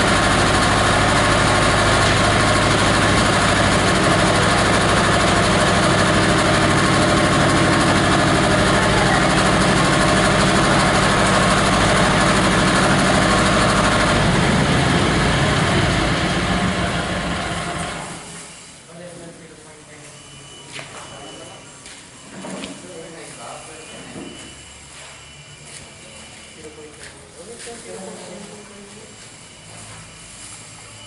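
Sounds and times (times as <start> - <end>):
diesel engine running: 0.0 - 18.6.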